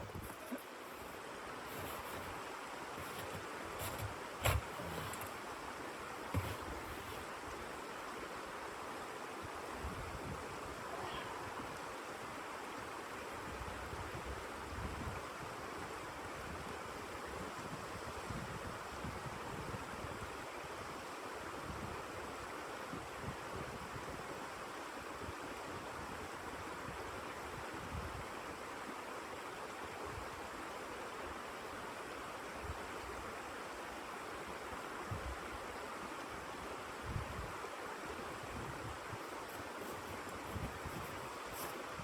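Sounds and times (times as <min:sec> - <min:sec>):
blizzard wind blowing: 0:38.2 - 0:42.0.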